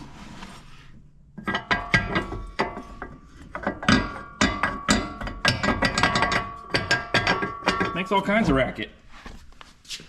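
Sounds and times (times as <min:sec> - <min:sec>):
shock absorber clunking metal on metal: 0:01.4 - 0:08.7.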